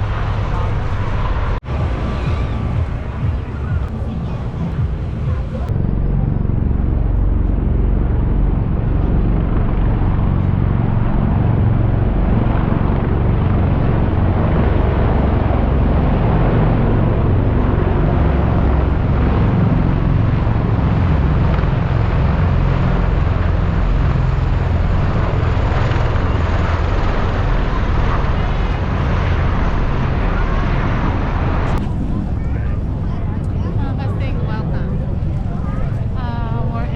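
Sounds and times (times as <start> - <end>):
aircraft engine roaring: 0.0 - 36.9.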